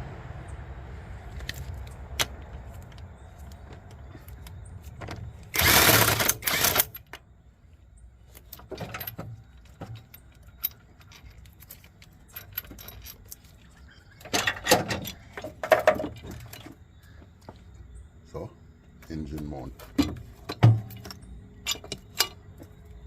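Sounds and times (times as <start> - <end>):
hand tools clicking and knocking: 2.2 - 7.2, 8.3 - 16.8, 19.3 - 22.8
rapid mechanical rattling: 5.3 - 7.1.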